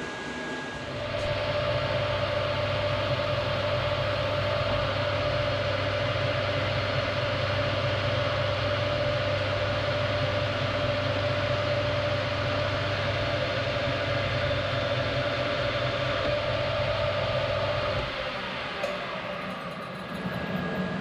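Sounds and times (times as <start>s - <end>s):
metal lathe running: 0.0s - 21.0s.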